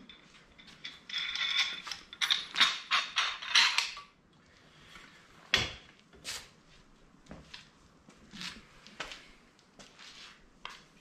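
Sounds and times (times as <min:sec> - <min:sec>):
small metal parts clinking: 0:00.1 - 0:04.0.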